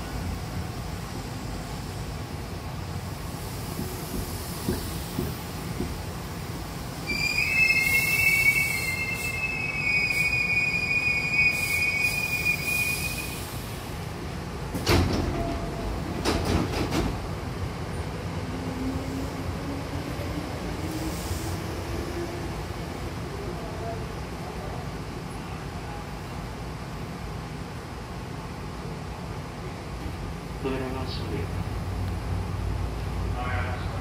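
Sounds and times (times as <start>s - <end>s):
train doors sliding open: 3.0s - 22.6s
train brakes squealing: 7.0s - 13.7s.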